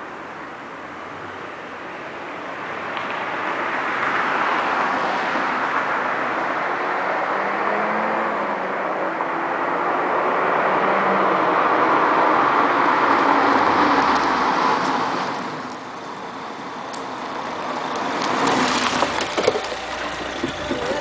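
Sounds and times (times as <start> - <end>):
car exhaust while driving: 15.7 - 21.0.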